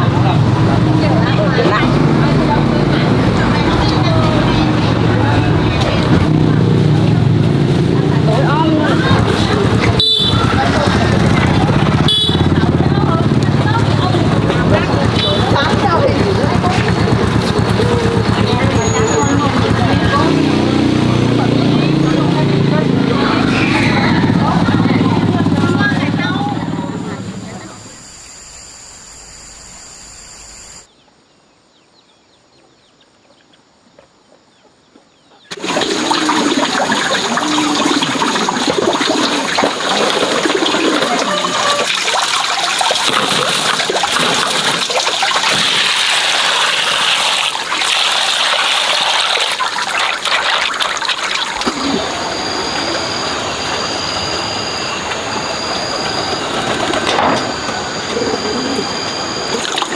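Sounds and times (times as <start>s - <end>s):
water running and splashing: 35.5s - 54.0s.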